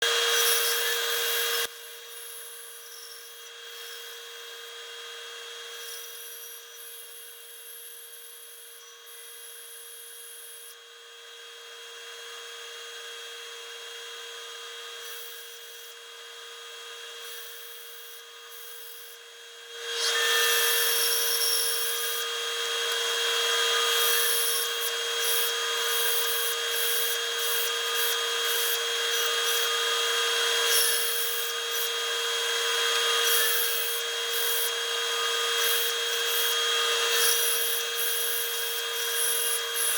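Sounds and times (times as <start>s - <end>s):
woodworking machine motor: 20.0s - 39.9s.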